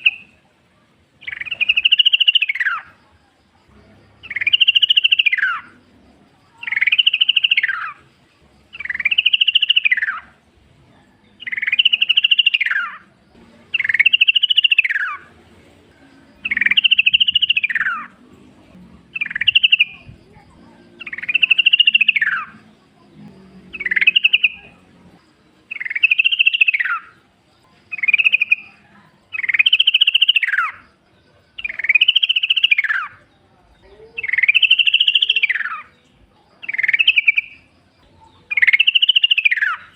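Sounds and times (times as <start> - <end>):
bulbul singing bubbly phrase: 19.0 - 22.7.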